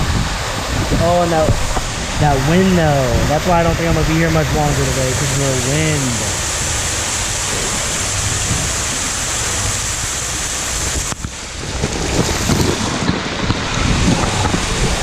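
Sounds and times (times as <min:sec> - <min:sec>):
water splashing on camera: 0:00.0 - 0:15.0
wind buffeting microphone: 0:00.0 - 0:15.0.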